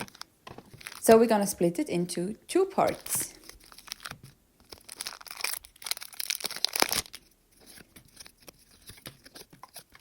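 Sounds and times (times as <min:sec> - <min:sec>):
wrapper tearing and crinkling: 0:00.0 - 0:01.1, 0:02.9 - 0:10.0.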